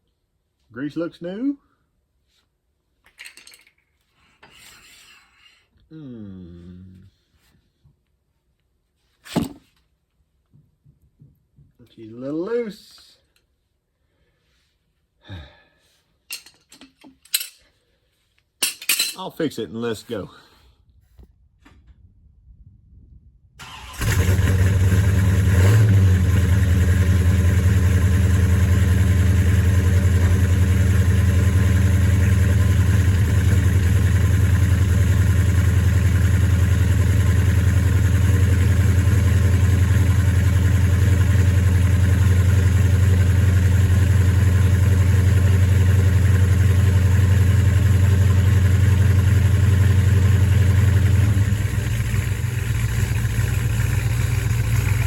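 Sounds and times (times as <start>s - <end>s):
car engine starting and idling loudly: 23.6s - 55.0s.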